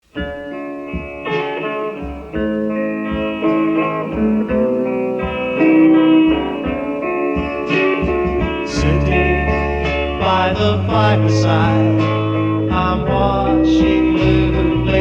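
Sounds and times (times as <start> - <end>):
electric guitars playing melody: 0.0 - 15.0
drum hits: 0.2 - 11.0
bass guitar notes: 1.8 - 15.0.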